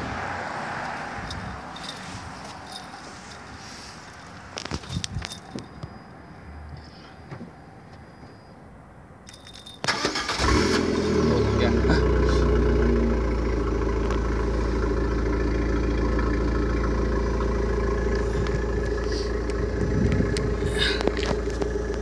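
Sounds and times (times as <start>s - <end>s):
car engine idling: 9.8s - 22.0s.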